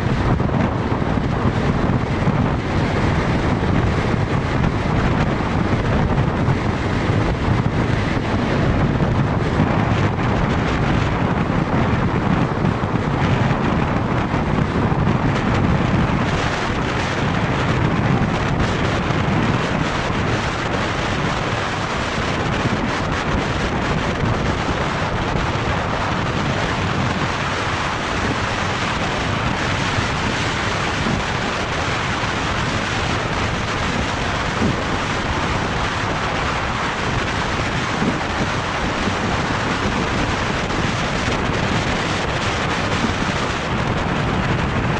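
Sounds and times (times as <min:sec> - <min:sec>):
wind roaring on microphone: 0:00.0 - 0:44.9.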